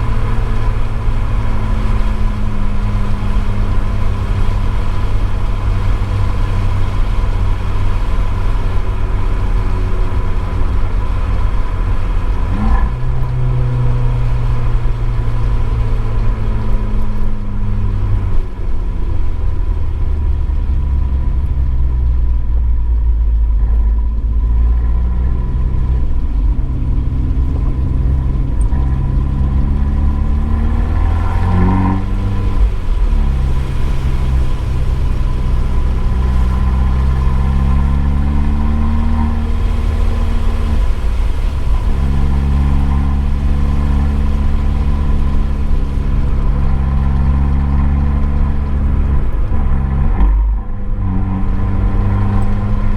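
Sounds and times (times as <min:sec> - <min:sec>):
car engine running hard: 0:00.0 - 0:52.9.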